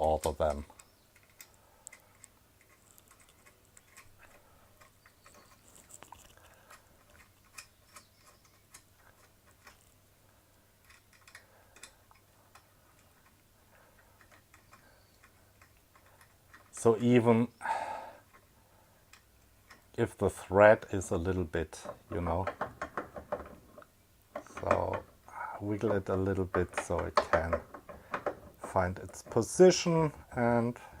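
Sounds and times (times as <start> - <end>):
small metal screw and tools clicking: 0.2 - 10.0, 10.8 - 16.8, 18.3 - 19.9.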